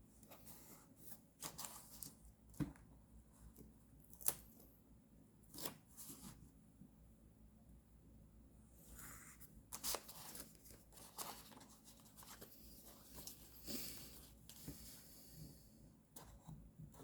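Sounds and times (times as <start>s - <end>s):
paper rustling: 9.7s - 14.7s.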